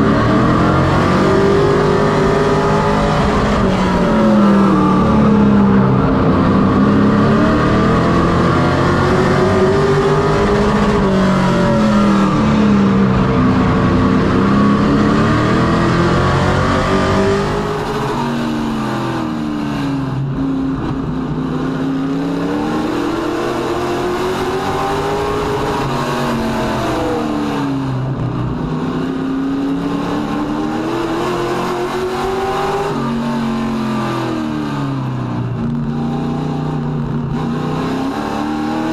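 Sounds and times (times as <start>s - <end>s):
racing truck engine accelerating: 0.0s - 38.9s.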